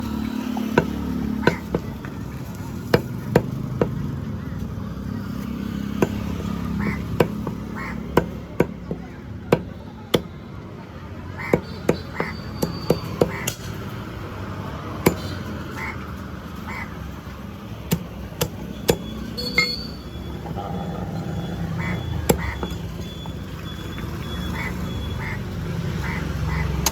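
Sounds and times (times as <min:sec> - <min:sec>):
cleaver chopping on a block: 0:00.6 - 0:01.9, 0:06.0 - 0:06.3, 0:07.1 - 0:10.4, 0:15.0 - 0:15.3.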